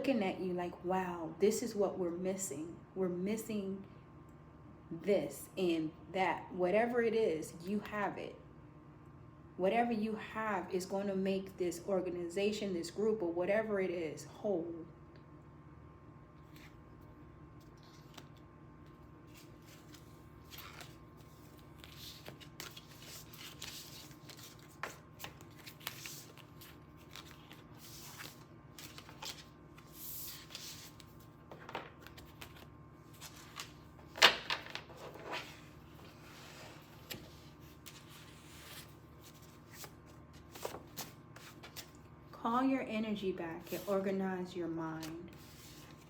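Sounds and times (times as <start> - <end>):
cards being shuffled: 17.6 - 42.0.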